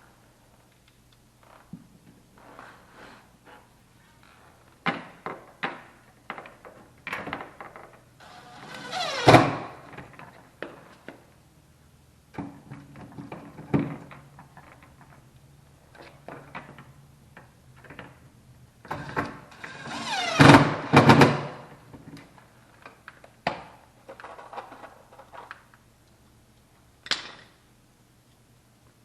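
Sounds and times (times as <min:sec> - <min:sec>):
scraping squealing: 0:08.2 - 0:09.4.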